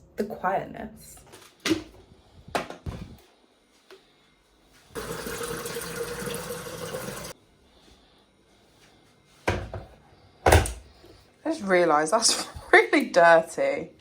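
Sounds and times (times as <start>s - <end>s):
water running from a tap: 5.0s - 7.4s.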